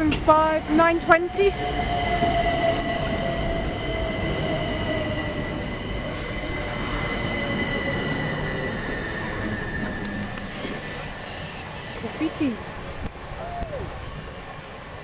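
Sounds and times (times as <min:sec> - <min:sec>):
high-pitched train whines: 0:00.0 - 0:15.0
wheels rumbling on rail: 0:00.0 - 0:15.0.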